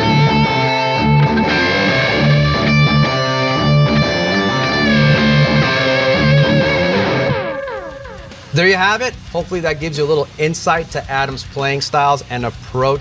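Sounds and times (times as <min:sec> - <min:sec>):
sustained electric guitar lead notes: 0:00.0 - 0:09.2
electric guitar riff: 0:00.0 - 0:10.0.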